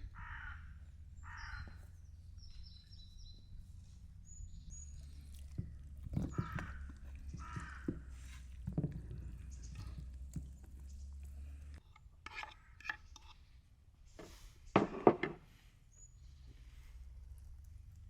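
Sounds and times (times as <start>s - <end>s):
cookware knocking and clinking: 14.8s - 15.4s.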